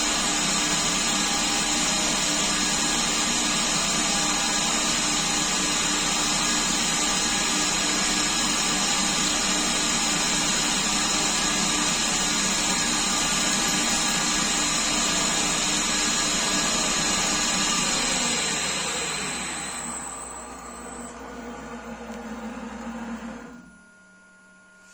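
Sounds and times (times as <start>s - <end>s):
lathe running with high whine: 0.0s - 24.7s.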